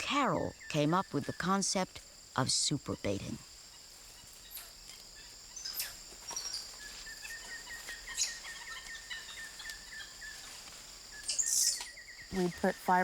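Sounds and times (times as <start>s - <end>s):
high insect drone: 0.0s - 13.0s
small chirping calls: 3.7s - 13.0s.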